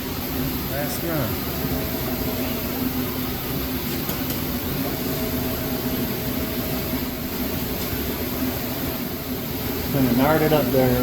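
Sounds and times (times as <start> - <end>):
bead roller machine drone: 4.5 - 11.0.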